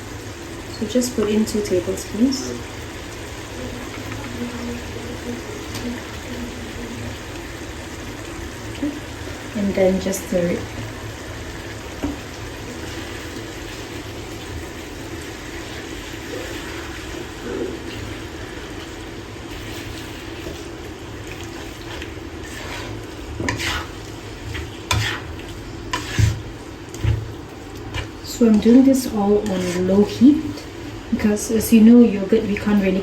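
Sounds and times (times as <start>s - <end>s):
curry sizzling in a pot: 0.0s - 33.0s
spoon scraping and knocking pot: 21.6s - 27.2s, 27.9s - 30.2s.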